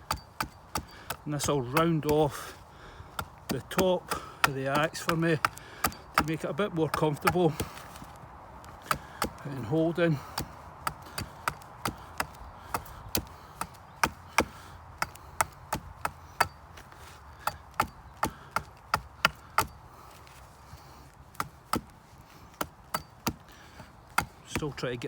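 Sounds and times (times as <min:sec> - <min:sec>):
axe chipping wood: 0:00.0 - 0:25.0.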